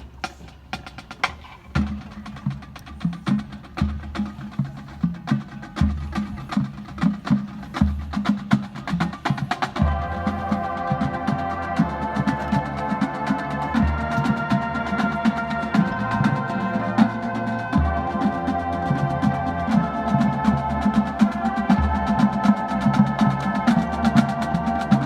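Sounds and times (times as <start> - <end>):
held chord of sustained notes: 9.8 - 25.0.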